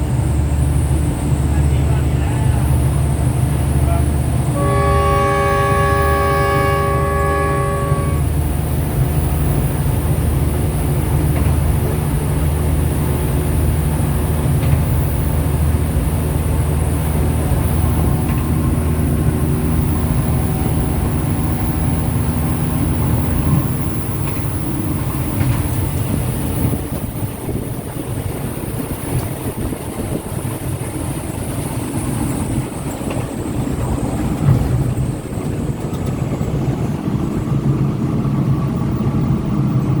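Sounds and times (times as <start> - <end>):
train engine drone: 0.0 - 40.0
train rumbling on track: 0.0 - 40.0
train horn chord: 4.4 - 8.5.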